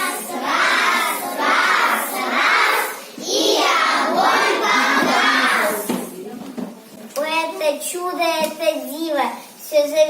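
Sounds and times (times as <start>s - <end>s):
children singing together: 0.0s - 6.0s.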